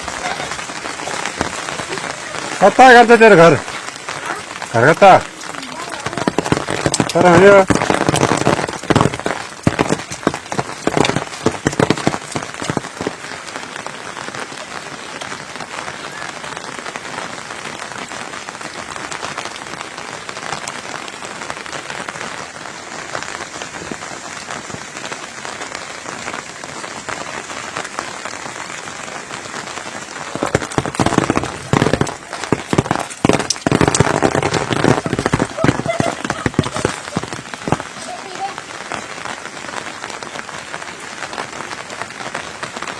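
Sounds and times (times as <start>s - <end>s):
steady rain falling: 0.0s - 42.9s
loud irregular sounds: 30.1s - 38.7s.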